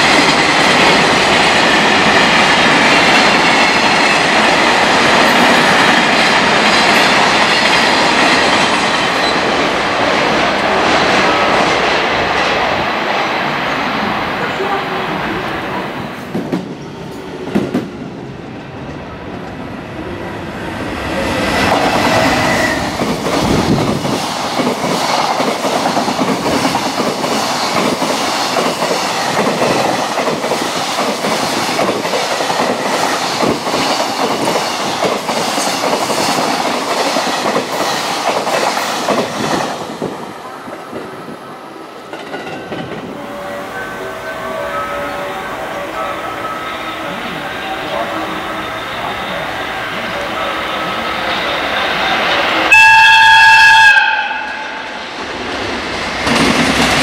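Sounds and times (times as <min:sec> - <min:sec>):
freight train wheels clattering: 0:21.4 - 0:41.2, 0:42.1 - 0:45.6.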